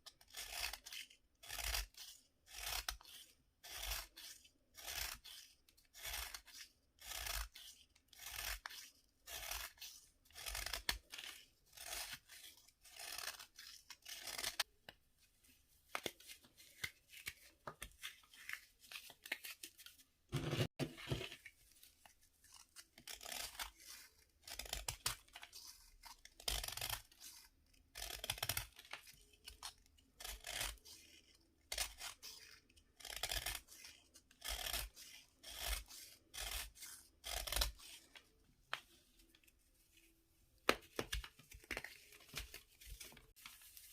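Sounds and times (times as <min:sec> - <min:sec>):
crumbly bath fizzer being scraped: 0:00.3 - 0:14.7, 0:20.4 - 0:38.4.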